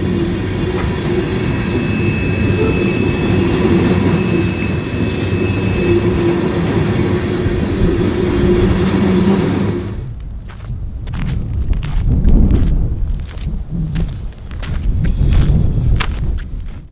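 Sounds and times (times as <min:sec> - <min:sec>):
steady ringing tone: 0:00.0 - 0:10.2
train wheels rumbling on rails: 0:00.0 - 0:16.9.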